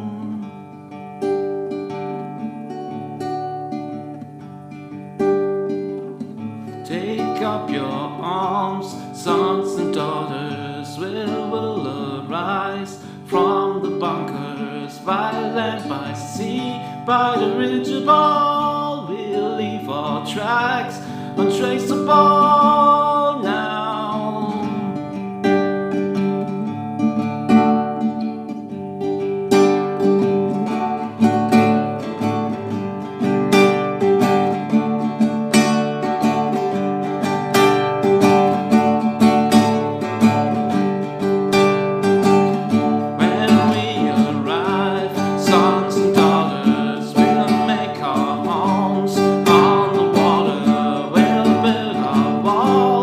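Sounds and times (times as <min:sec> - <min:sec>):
acoustic guitar strumming: 0:00.0 - 0:53.0
wordless vocal line: 0:06.9 - 0:25.2, 0:43.0 - 0:53.0.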